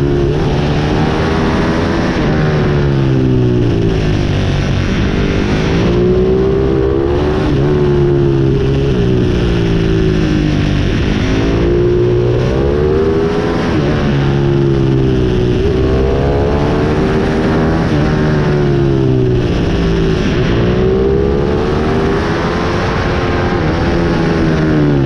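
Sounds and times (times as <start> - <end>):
motorbike engine revving: 0.0 - 25.0.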